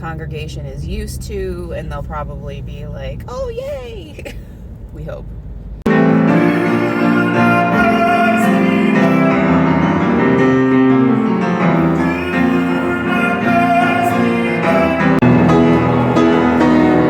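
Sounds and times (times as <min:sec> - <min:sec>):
piano playing: 0:05.9 - 0:17.0
voices singing: 0:05.9 - 0:17.0.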